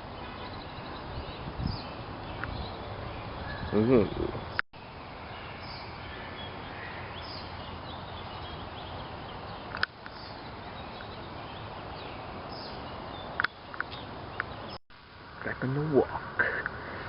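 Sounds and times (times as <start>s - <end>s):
creek water flowing: 4.3s - 17.0s.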